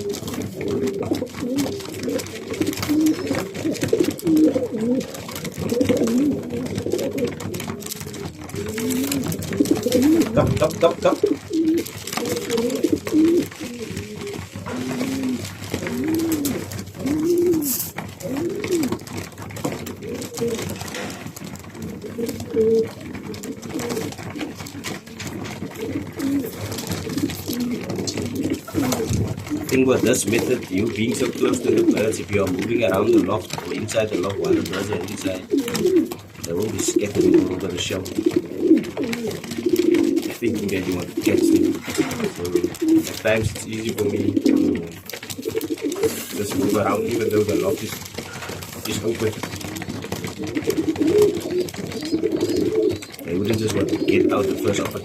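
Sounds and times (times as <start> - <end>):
pigeons cooing: 0.0 - 55.0.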